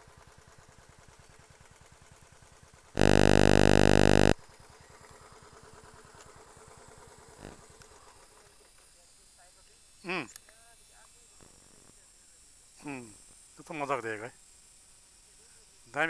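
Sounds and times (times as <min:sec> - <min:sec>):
loud electronic buzz: 0:03.0 - 0:04.4.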